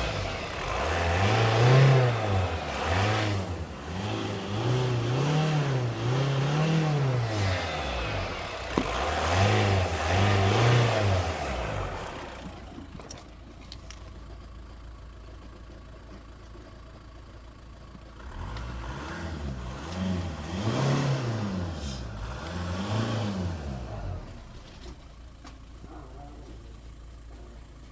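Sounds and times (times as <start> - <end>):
diesel engine revving and idling: 0.0 - 27.9.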